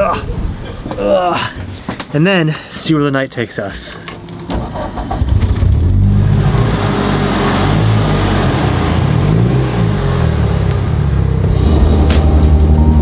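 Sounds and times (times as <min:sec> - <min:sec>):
car engine revving: 0:04.2 - 0:13.0.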